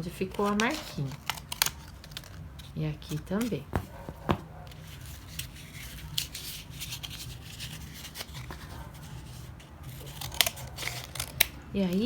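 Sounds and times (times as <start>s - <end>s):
paper handling: 0.0s - 12.0s
scissors snipping cardboard: 3.0s - 12.0s.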